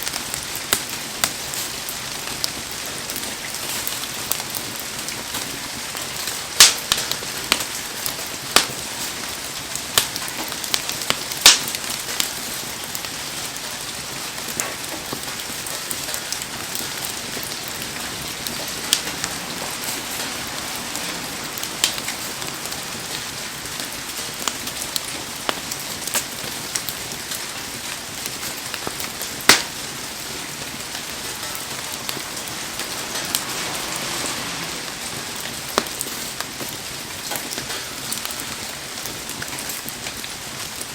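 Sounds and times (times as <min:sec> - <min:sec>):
heavy rain hissing: 0:00.0 - 0:40.9
sharp pops and ticks: 0:10.0 - 0:12.3, 0:27.9 - 0:30.0.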